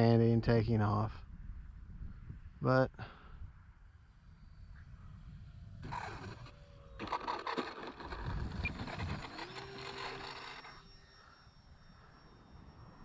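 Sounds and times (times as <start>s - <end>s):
electric motor whine: 3.6s - 13.0s
model plane wheels scraping: 4.5s - 11.2s.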